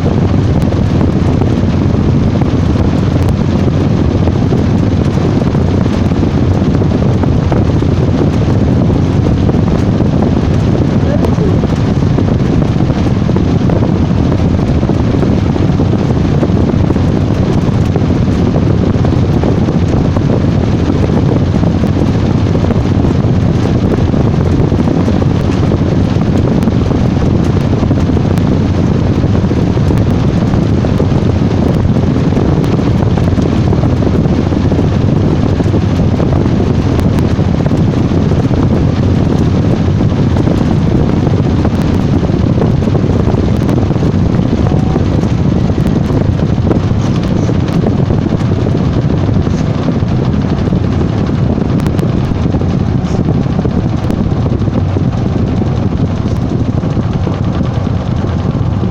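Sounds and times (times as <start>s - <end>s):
washing machine running: 0.0s - 58.9s.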